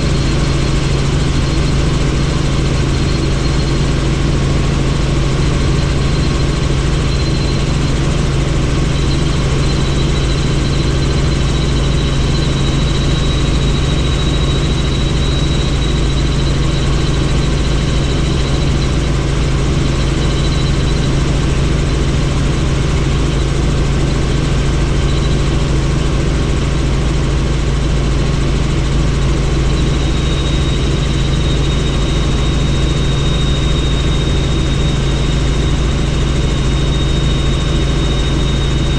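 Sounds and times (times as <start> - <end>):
helicopter rotor and engine drone: 0.0 - 38.9
high turbine whine: 0.0 - 38.9.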